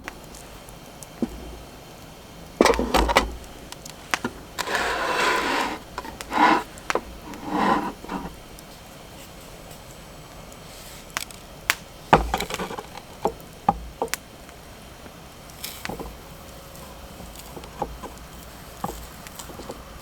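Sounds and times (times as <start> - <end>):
hard objects knocking and clicking: 2.6 - 8.4, 12.1 - 14.2, 17.2 - 20.0.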